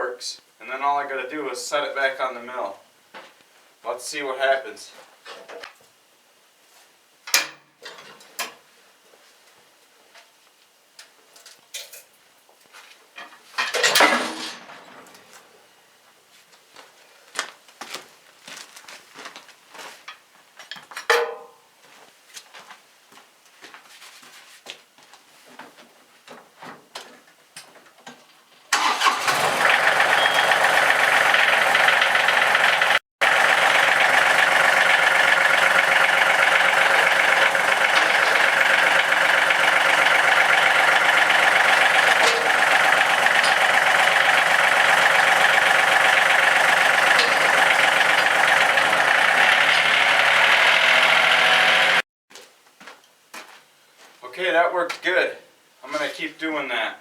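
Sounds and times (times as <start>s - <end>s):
tractor engine running: 13.8s - 15.7s, 28.7s - 52.0s.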